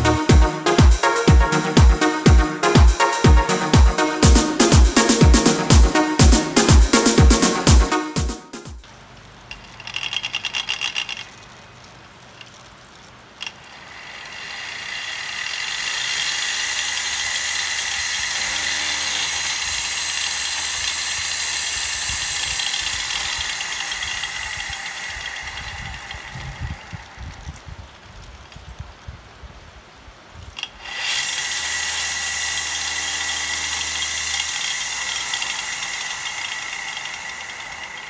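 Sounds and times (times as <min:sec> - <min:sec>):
motor rattle: 0:08.8 - 0:27.6, 0:30.6 - 0:38.0
small motor whine: 0:13.4 - 0:27.7, 0:30.6 - 0:38.0.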